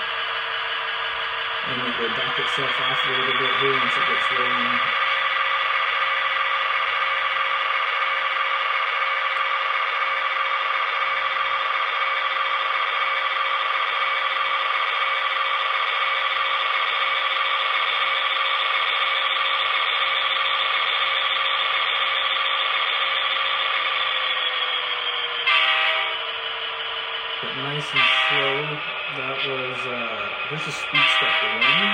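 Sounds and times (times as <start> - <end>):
diesel engine through small speaker: 0.0 - 31.9.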